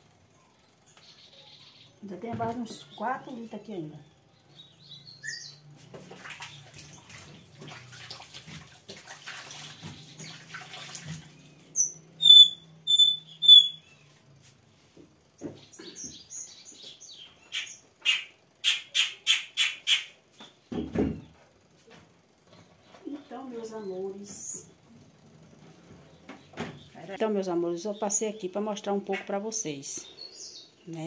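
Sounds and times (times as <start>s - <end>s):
bird chirping: 0.4s - 5.7s, 11.4s - 14.2s, 15.5s - 21.3s, 27.8s - 31.0s.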